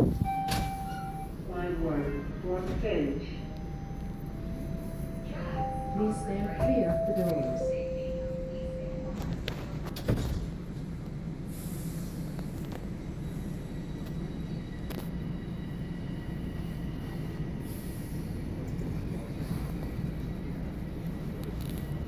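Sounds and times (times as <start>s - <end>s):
train wheels rumbling on track: 8.9s - 22.0s.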